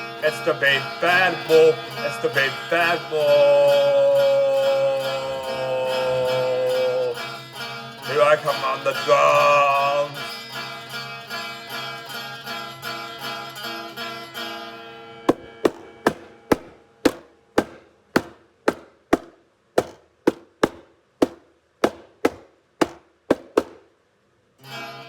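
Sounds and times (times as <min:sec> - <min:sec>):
plucked-string backing music: 0:00.0 - 0:23.8, 0:24.6 - 0:25.0
single drum strikes ringing: 0:15.3 - 0:23.8.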